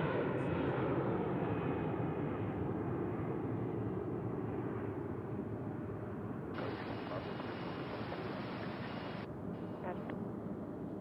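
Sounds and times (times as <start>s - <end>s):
jet airliner engine rush: 0.0s - 11.0s.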